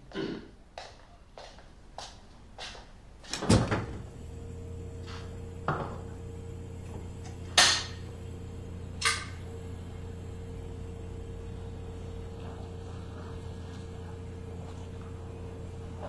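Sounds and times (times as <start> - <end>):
fridge humming: 3.2 - 16.0
refrigerator door opening thud: 3.3 - 4.1.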